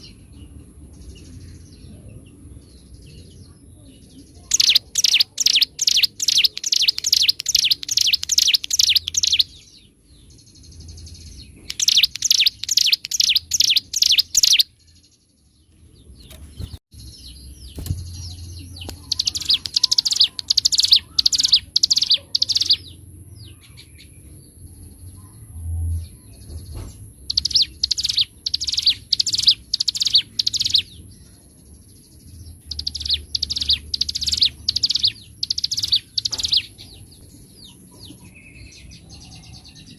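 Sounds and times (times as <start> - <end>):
bird singing sharp repeated notes: 4.2 - 15.4, 16.1 - 23.0, 27.2 - 31.1, 31.9 - 39.9.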